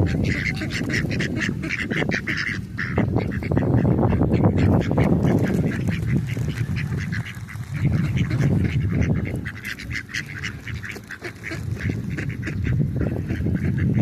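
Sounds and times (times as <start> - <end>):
ducks and geese calling: 0.0 - 14.0.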